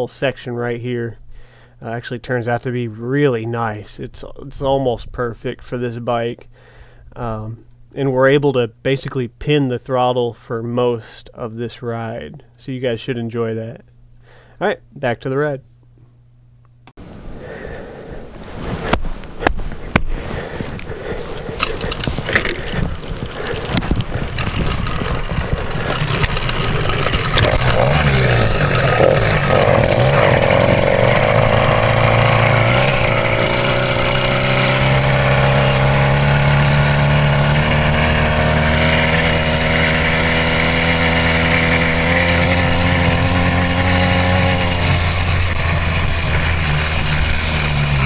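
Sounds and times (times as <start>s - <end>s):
bicycle frame rattling: 19.4s - 48.0s
two-stroke engine revving: 20.3s - 48.0s.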